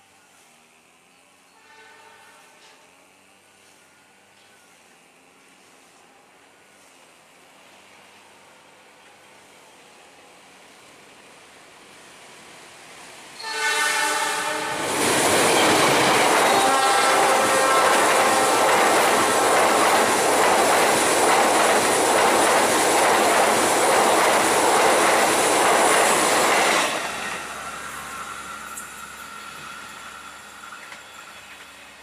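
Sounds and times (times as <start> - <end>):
train wheels on rails: 0.0 - 32.0
locomotive horn: 1.6 - 2.6, 13.4 - 14.9, 16.4 - 18.6.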